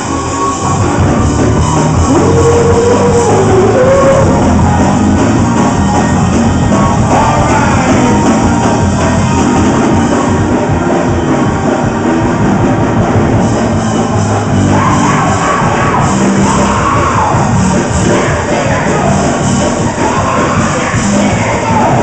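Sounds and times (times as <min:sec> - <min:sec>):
church band playing gospel music: 0:00.0 - 0:22.0.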